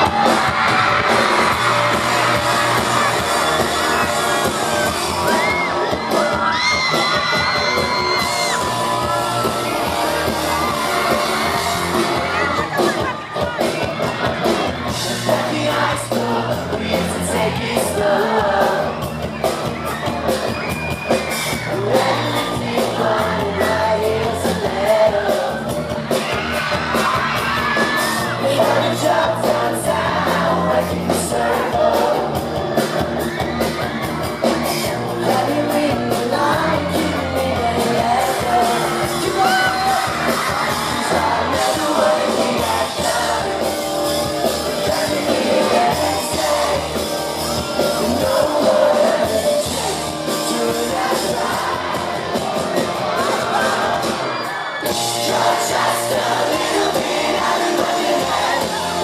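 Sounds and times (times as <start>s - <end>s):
pop-rock band playing live: 0.0s - 59.0s
person singing lead vocals: 14.9s - 19.1s, 21.6s - 25.9s, 26.9s - 32.6s, 34.7s - 59.0s.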